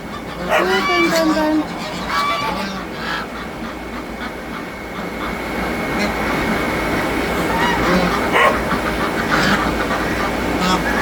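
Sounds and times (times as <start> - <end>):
ducks calling: 0.0 - 11.0
geese honking: 0.0 - 11.0.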